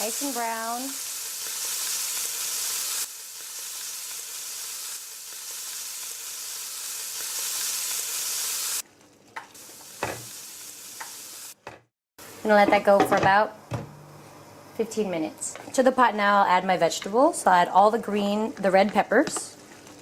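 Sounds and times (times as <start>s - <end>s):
chicken sizzling in hot oil: 0.0s - 11.6s.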